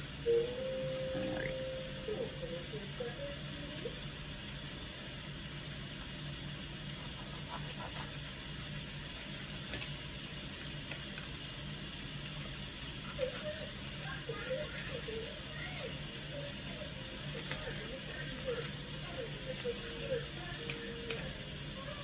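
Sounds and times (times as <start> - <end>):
chicken sizzling in a pot: 0.0 - 22.0.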